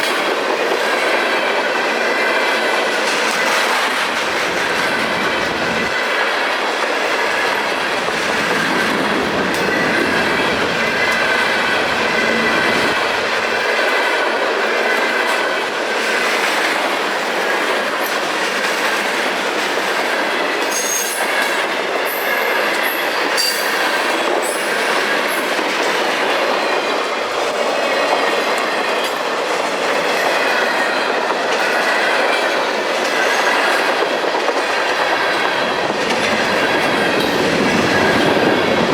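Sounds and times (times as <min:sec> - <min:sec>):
clickety-clack over rail joints: 0:00.0 - 0:38.9
train wheels on rails: 0:00.0 - 0:38.9
wheels squealing: 0:07.3 - 0:13.7.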